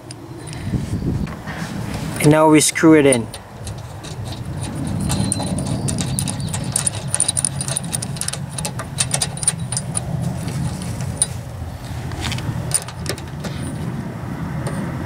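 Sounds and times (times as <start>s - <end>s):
steady low rumble: 0.0s - 15.0s
screw clicking into metal: 3.0s - 11.3s.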